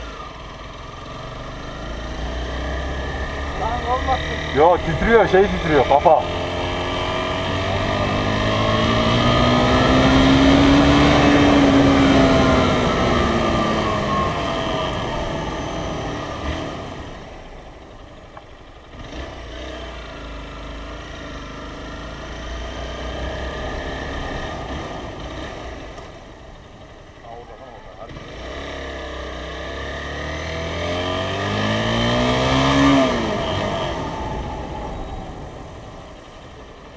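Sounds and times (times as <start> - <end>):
motorcycle engine revving: 0.0 - 36.9
road and wind noise: 0.0 - 36.9.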